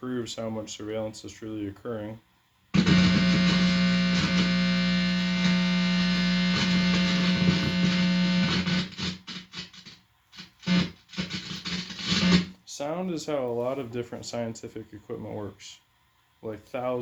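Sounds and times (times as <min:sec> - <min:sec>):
guitar amplifier electrical buzz: 0:02.7 - 0:12.6.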